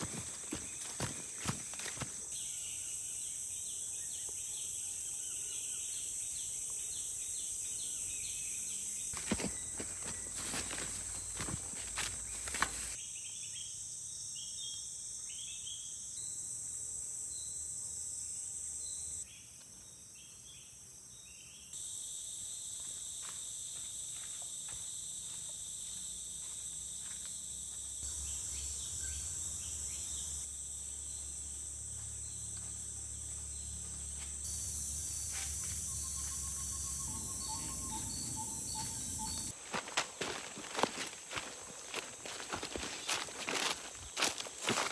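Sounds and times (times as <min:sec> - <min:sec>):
insects buzzing high-pitched: 0:00.0 - 0:44.9
bird chirps: 0:33.1 - 0:39.6.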